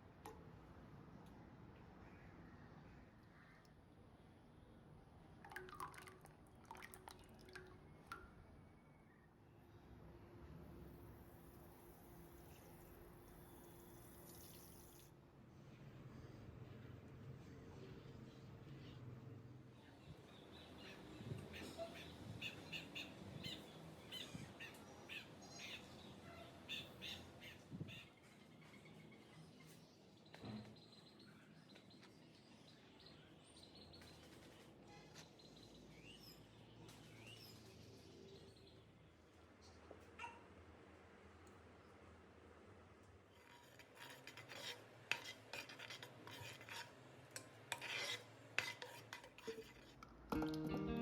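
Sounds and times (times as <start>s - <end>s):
spoon scraping and clinking in pan: 43.4s - 50.0s
guitar music: 50.4s - 51.0s.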